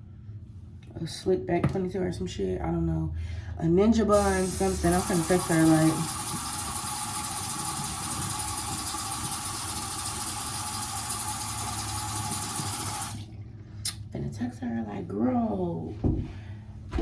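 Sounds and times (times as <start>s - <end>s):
sink tap running water: 4.1s - 13.3s.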